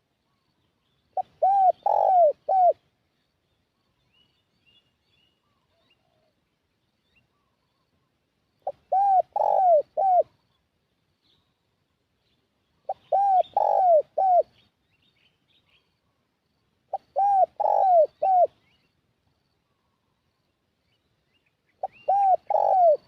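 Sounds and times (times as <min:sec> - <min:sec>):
dove cooing: 0:01.2 - 0:02.8, 0:08.6 - 0:10.4, 0:12.8 - 0:14.6, 0:16.9 - 0:18.6, 0:21.8 - 0:23.0.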